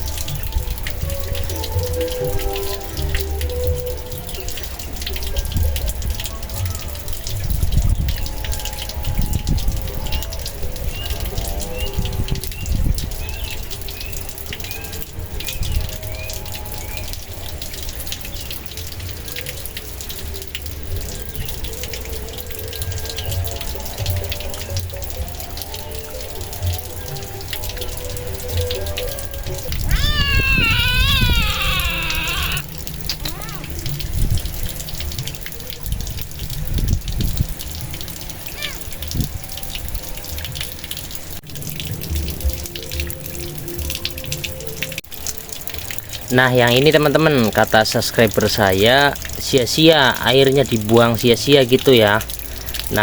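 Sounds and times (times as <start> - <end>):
water running and splashing: 0.0 - 53.0
wind rumble on microphone: 5.4 - 13.9, 33.8 - 38.1, 39.0 - 40.6
wind on microphone: 7.4 - 13.4, 29.6 - 32.3, 35.9 - 37.6.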